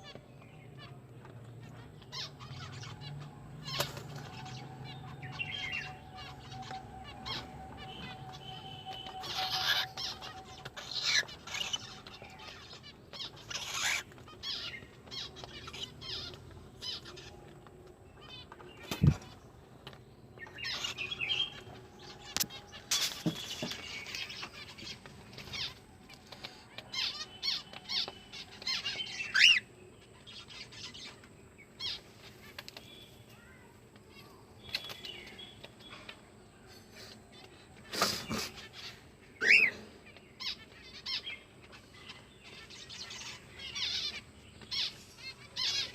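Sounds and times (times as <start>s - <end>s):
bird chirping and whistling: 5.2s - 11.8s, 39.4s - 39.8s.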